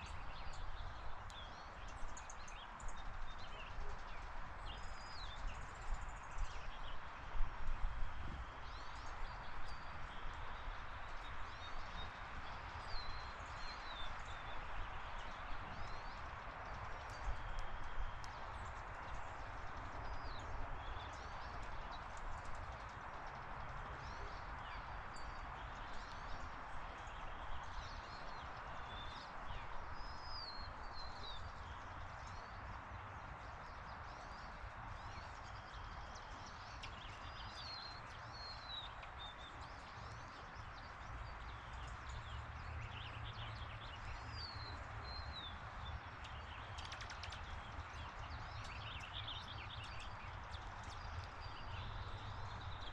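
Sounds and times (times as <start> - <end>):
small birds chirping: 0.0 - 52.9
steady outdoor hiss: 0.0 - 52.9
faint clicks: 1.2 - 1.4, 46.2 - 47.8.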